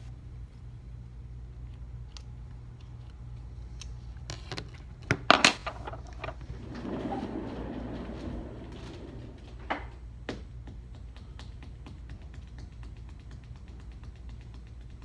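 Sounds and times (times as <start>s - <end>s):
steady low hum: 0.0s - 15.0s
soft scraping rustle: 5.8s - 9.6s.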